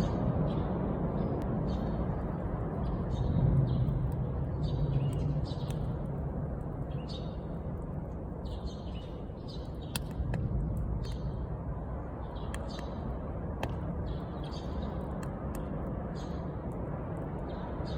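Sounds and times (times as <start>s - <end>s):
small birds chirping: 0.0s - 17.9s
bonfire rumbling: 0.2s - 17.9s
burning wood popping: 3.8s - 7.1s, 9.1s - 11.6s, 12.2s - 17.5s.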